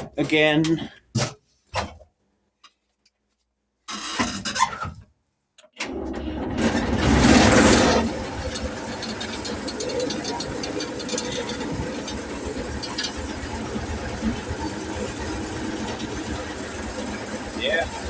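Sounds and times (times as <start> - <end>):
combine engine running: 6.3 - 18.0.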